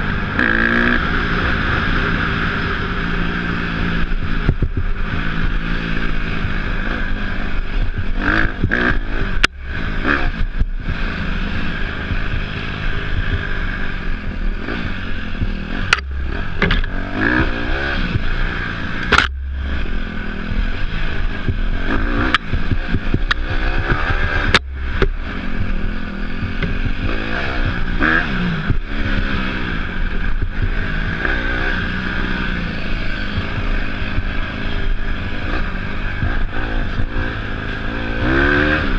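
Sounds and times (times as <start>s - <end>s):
dirt bike engine revving: 0.0s - 38.9s
wind and riding noise: 0.0s - 38.9s
sharp knocks: 15.8s - 16.9s, 19.1s - 19.9s.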